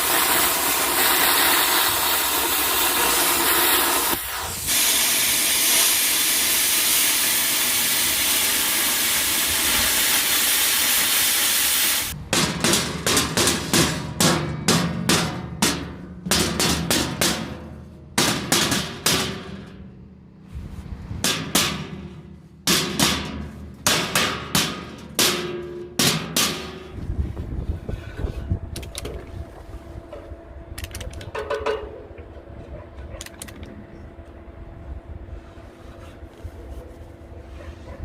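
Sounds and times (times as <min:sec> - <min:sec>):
low hum: 0:27.0 - 0:38.0.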